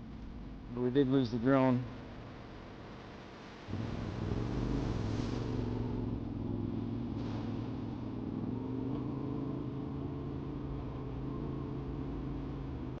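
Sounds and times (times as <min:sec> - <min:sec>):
steady hiss: 0:03.4 - 0:06.2.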